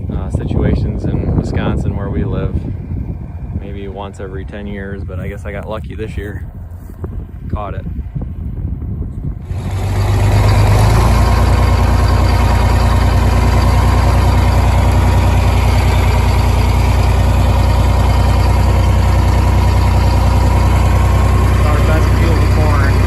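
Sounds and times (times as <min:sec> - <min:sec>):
large engine running: 0:09.4 - 0:23.0.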